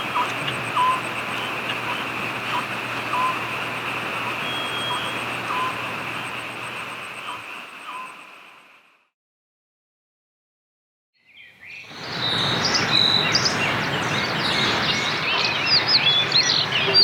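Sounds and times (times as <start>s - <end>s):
steady rain: 0.0s - 8.2s
short chirping calls: 0.0s - 8.3s.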